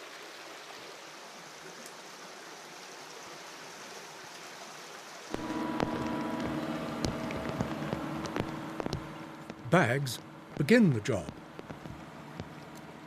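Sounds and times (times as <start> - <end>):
stream water rushing: 0.0 - 13.0
humming tones with sharp knocks: 5.3 - 13.0.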